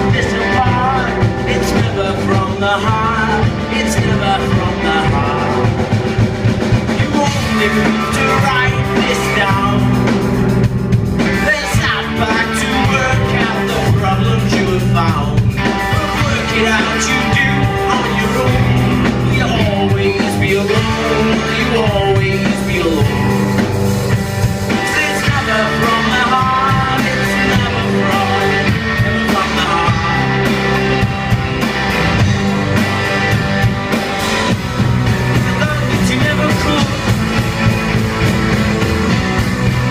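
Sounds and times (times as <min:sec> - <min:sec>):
person singing: 0:00.0 - 0:06.1, 0:06.9 - 0:10.3, 0:11.2 - 0:23.7, 0:24.7 - 0:31.3, 0:35.2 - 0:37.7
drum kit: 0:00.0 - 0:39.9
guitar: 0:00.0 - 0:39.9.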